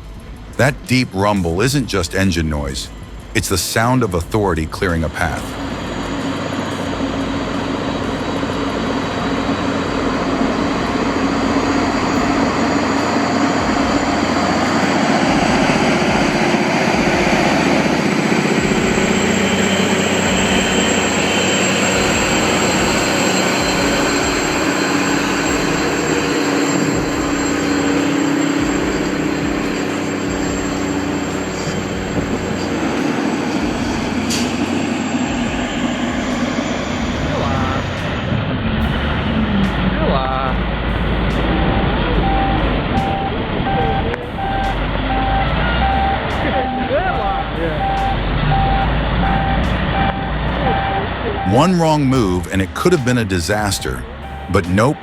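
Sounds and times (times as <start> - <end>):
truck diesel engines rumbling: 0.0 - 55.0.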